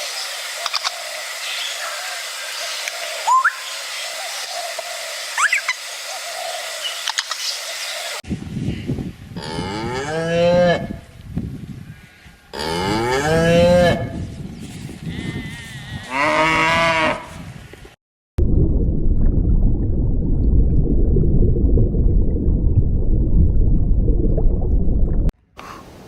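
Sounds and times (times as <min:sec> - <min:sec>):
cow mooing: 0:12.5 - 0:14.1, 0:15.1 - 0:17.3.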